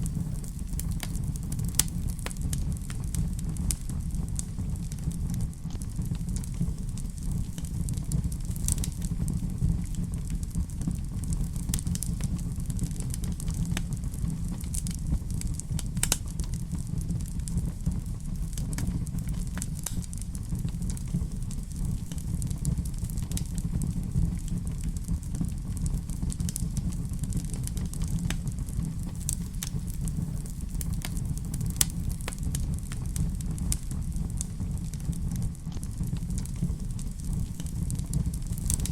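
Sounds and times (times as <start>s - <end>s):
sharp pops and snaps of fire: 0.0s - 38.9s
wood fire crackling: 0.0s - 38.9s.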